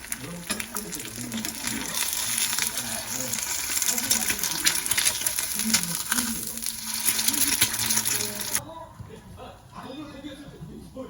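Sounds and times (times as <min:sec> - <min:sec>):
food sizzling in a pan: 0:00.0 - 0:08.6.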